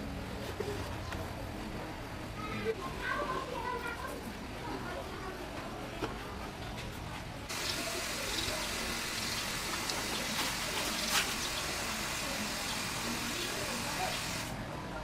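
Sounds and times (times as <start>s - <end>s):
hissing spray: 7.5s - 14.6s.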